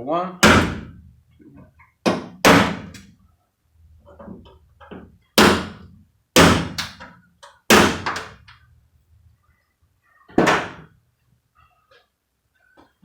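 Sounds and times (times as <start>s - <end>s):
hammer striking metal punch: 0.4s - 1.0s, 6.4s - 7.0s.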